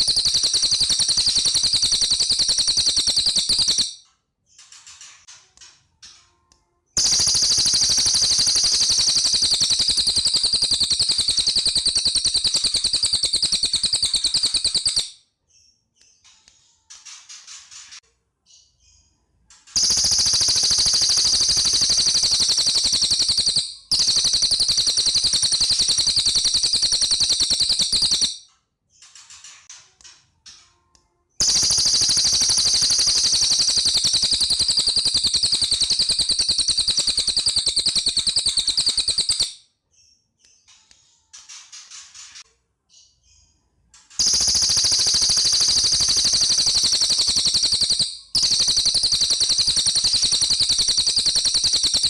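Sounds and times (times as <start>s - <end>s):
bird rattling trills: 0.0s - 4.0s, 7.0s - 15.1s, 19.7s - 28.4s, 31.4s - 39.6s, 44.2s - 52.0s
bird chirps: 0.0s - 29.6s, 30.5s - 52.0s.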